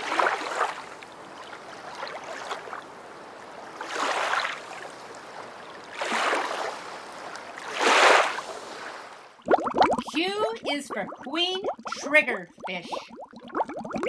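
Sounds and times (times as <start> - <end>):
water washing in surges: 0.0 - 2.8, 3.8 - 9.2.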